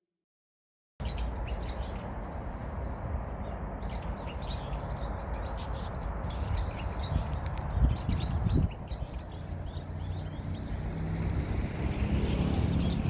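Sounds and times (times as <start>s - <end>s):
small birds chirping: 1.0s - 13.0s.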